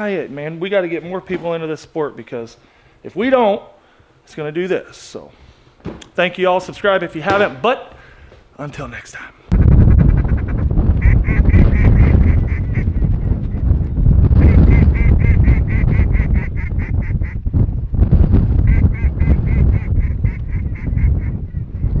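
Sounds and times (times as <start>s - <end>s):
heavy low rumble: 9.5s - 22.0s
ducks quacking: 10.2s - 12.9s.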